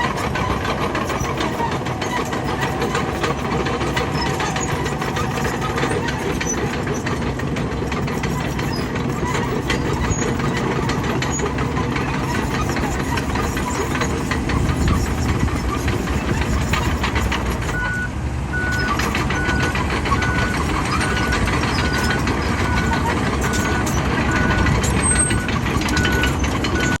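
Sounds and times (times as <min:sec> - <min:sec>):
metal clanks: 0:00.0 - 0:17.9
bulldozer diesel engine: 0:00.0 - 0:27.0
backup alarm beeping: 0:17.8 - 0:20.6.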